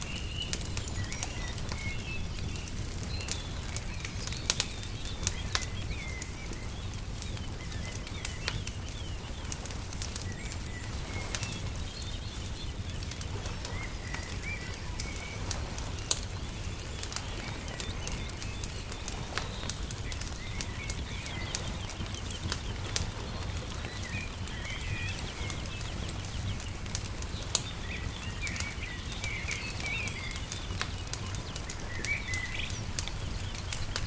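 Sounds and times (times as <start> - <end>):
small birds chirping: 0.0 - 34.0
wood fire crackling and popping: 0.0 - 34.0.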